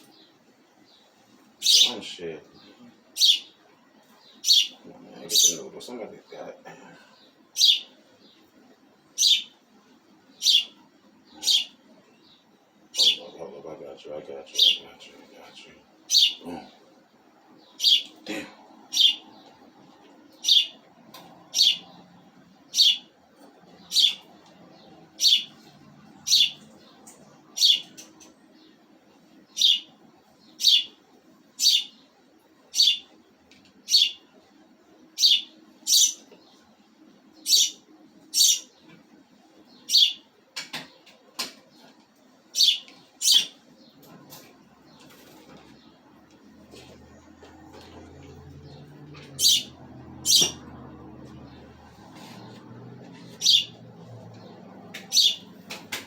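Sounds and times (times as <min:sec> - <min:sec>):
pet bird chirping: 0:00.0 - 0:02.1, 0:03.1 - 0:03.6, 0:04.3 - 0:05.7, 0:07.6 - 0:08.4, 0:09.1 - 0:09.6, 0:10.3 - 0:13.3, 0:14.5 - 0:14.9, 0:16.1 - 0:16.4, 0:17.6 - 0:18.2, 0:18.8 - 0:20.8, 0:21.4 - 0:23.2, 0:23.8 - 0:28.8, 0:29.4 - 0:31.0, 0:31.6 - 0:32.0, 0:32.7 - 0:33.2, 0:33.8 - 0:34.2, 0:35.2 - 0:36.5, 0:37.4 - 0:38.9, 0:39.7 - 0:40.2, 0:42.5 - 0:44.0, 0:46.7 - 0:51.7, 0:53.2 - 0:55.8.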